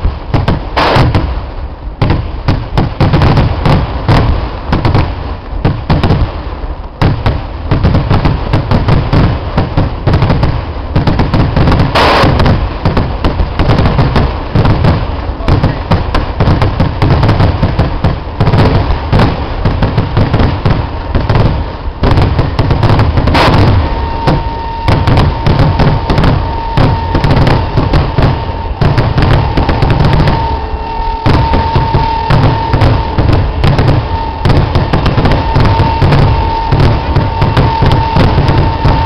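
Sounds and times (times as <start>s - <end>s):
fireworks rapid bangs: 0.0s - 39.0s
steady high tone: 23.3s - 39.0s.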